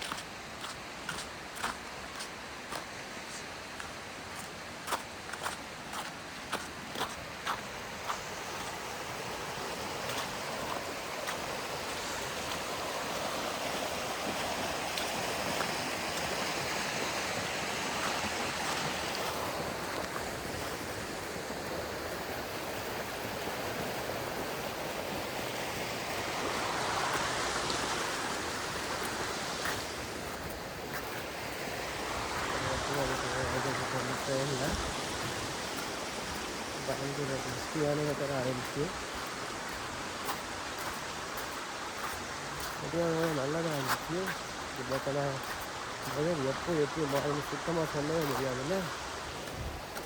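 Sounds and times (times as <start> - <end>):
rushing river water: 0.0 - 50.0.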